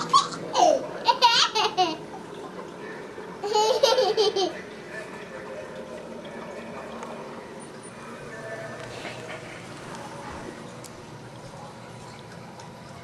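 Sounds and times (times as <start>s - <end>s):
toddler giggling: 0.0s - 2.0s, 3.4s - 4.6s.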